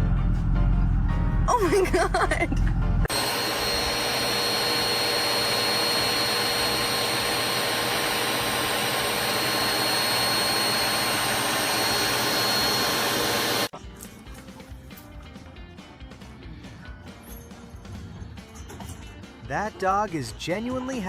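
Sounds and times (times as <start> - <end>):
motor-driven machine whirring: 3.1 - 13.7.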